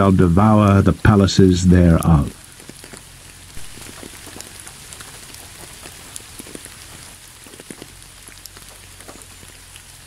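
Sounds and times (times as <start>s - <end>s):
raindrops ticking: 0.0s - 10.0s
steady rain hissing: 0.0s - 10.0s.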